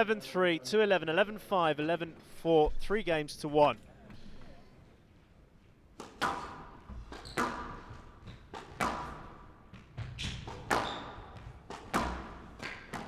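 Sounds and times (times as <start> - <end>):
squash ball hits: 6.0 - 13.0.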